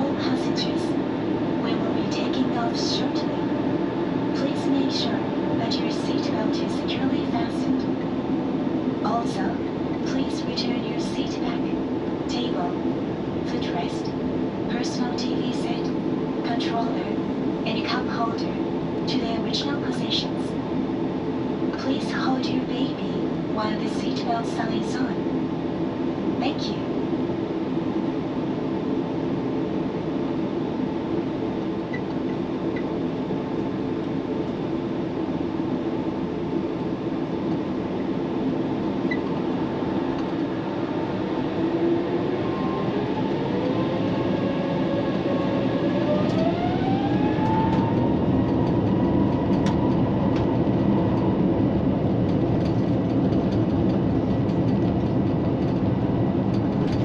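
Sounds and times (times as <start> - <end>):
airplane cabin rumble: 0.0 - 57.0
jet engines spooling up: 35.8 - 57.0.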